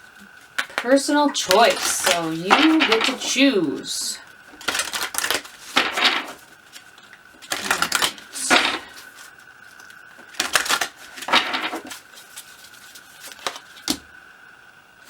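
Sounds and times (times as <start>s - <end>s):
cards being shuffled by hand: 0.1s - 14.1s.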